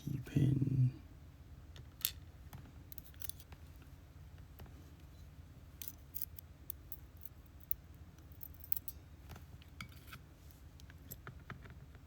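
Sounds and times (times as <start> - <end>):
low steady hum: 0.0 - 12.0
tweezers clicking on metal parts: 5.8 - 9.0.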